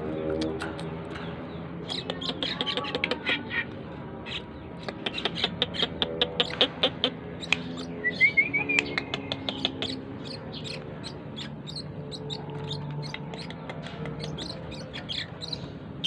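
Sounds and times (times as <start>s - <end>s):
starling chirping: 1.2s - 16.0s.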